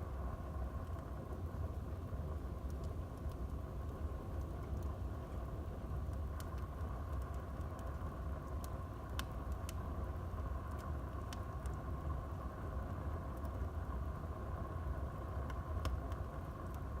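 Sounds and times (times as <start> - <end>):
fire rumbling and hissing: 0.0 - 17.0
wood fire crackling and popping: 0.0 - 17.0.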